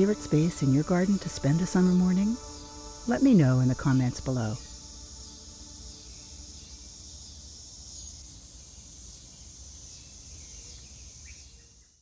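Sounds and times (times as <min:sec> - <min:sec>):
insect chorus trilling: 0:00.0 - 0:12.0.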